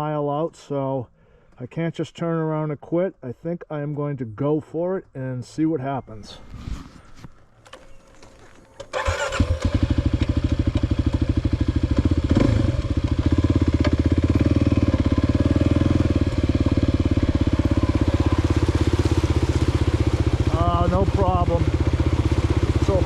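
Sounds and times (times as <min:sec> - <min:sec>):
dirt bike engine running: 0:09.0 - 0:23.0.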